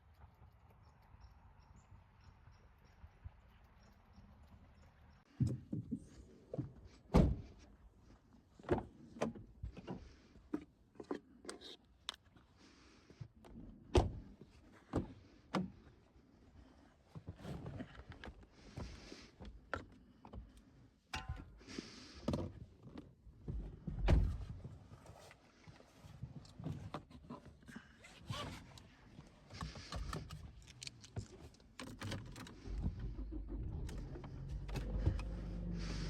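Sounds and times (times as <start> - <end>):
car engine idling: 32.6 - 36.0.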